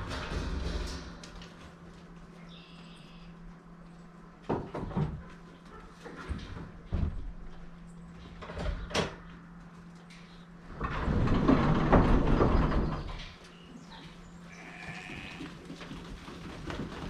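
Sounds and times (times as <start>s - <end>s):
loud scraping and rattling: 0.0s - 2.2s, 10.7s - 13.3s
steady low hum: 0.0s - 17.0s.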